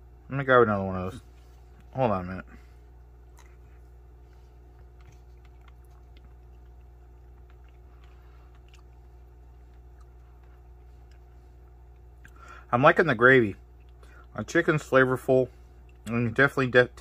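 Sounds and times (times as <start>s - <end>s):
steady low hum: 0.0s - 17.0s
man chewing food: 2.6s - 12.7s, 13.6s - 14.4s, 15.5s - 16.2s.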